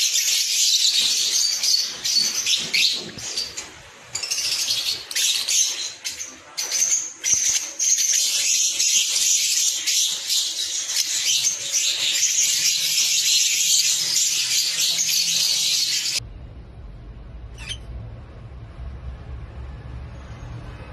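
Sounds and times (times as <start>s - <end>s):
lovebirds chattering: 0.0s - 16.2s.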